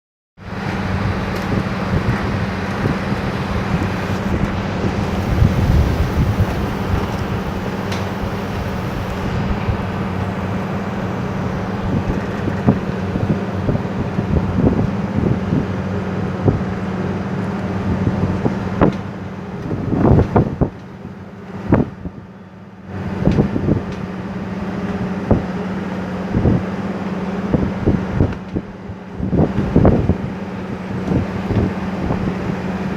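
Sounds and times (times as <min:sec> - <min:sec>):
low hum: 0:00.4 - 0:15.2
wind buffeting microphone: 0:00.4 - 0:16.7.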